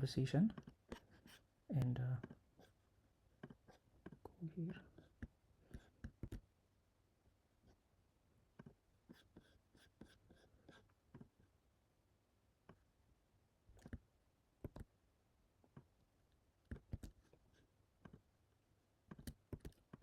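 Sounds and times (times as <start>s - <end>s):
mouse and keyboard clicks: 5.2s - 6.4s, 13.7s - 14.0s, 14.6s - 14.9s, 16.7s - 17.2s, 19.1s - 20.0s.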